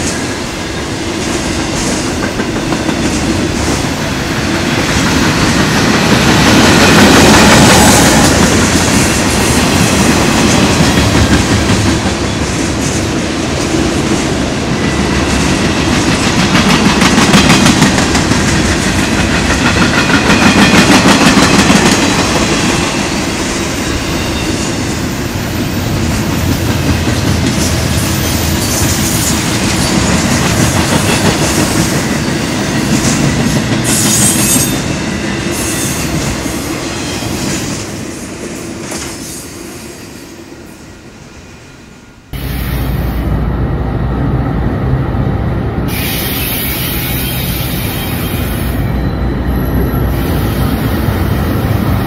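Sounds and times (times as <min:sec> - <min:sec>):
freight train wheels clattering: 0:01.0 - 0:25.0, 0:25.7 - 0:37.9.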